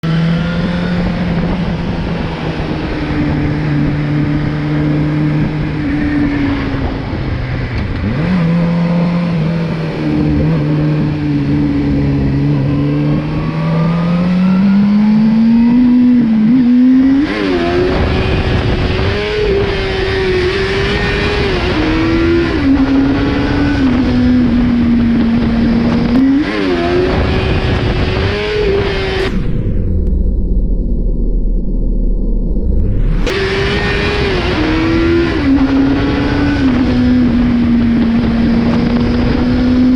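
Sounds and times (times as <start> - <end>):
motorcycle engine revving: 0.0 - 30.3, 32.4 - 39.9
wind rushing: 16.6 - 39.8.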